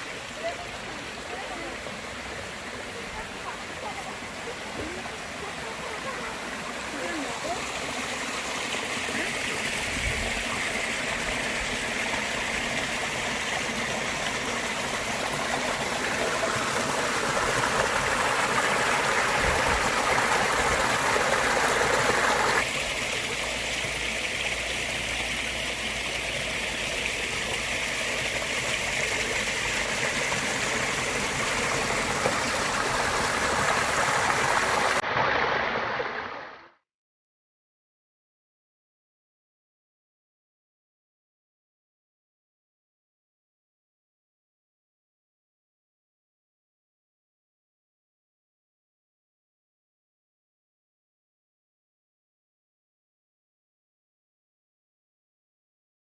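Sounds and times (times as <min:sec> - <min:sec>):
water rushing down cascade: 0:00.0 - 0:36.8.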